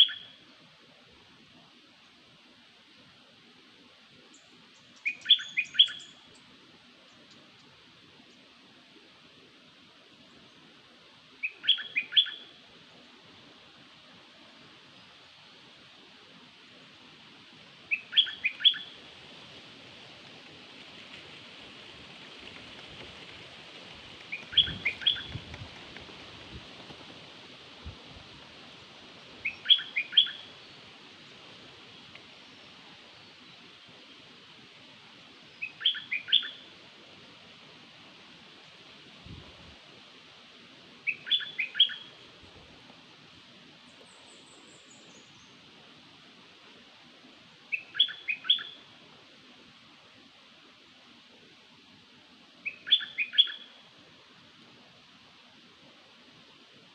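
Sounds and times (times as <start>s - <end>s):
steady hiss: 0.0s - 52.9s
bird chirping: 4.3s - 6.2s, 24.3s - 25.4s, 29.4s - 30.6s, 41.1s - 42.1s, 47.7s - 48.8s, 52.6s - 53.8s
high bird twitter: 5.0s - 6.2s, 24.4s - 25.4s, 29.4s - 30.5s.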